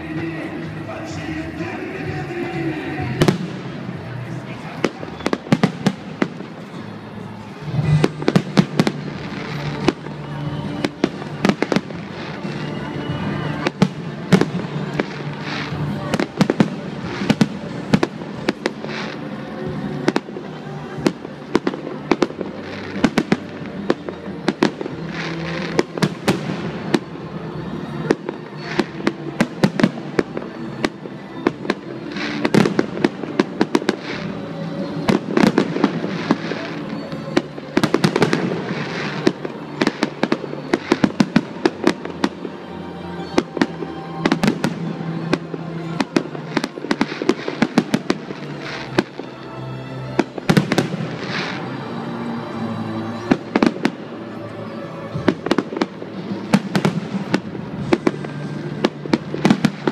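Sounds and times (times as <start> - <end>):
fireworks bursting: 0.0 - 52.3, 55.1 - 59.9.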